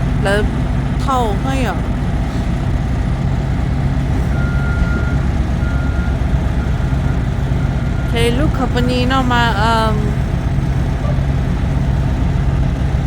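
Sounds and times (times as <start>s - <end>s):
diesel truck engine droning: 0.0s - 13.0s
reversing alarm beeping: 3.3s - 10.3s.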